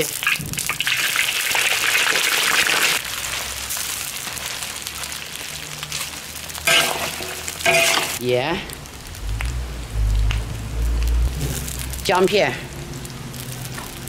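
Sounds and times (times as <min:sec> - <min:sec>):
meat sizzling in hot oil: 0:00.0 - 0:14.0
metal spatula scraping wok: 0:06.7 - 0:08.2.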